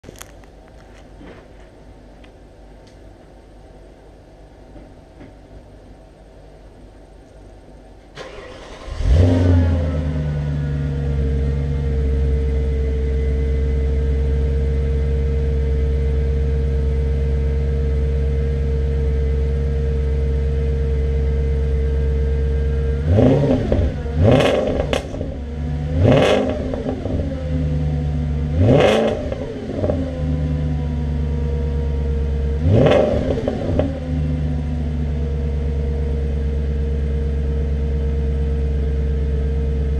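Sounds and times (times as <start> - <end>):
car engine starting and idling: 8.1 - 39.9
engine revving blips: 28.5 - 30.1.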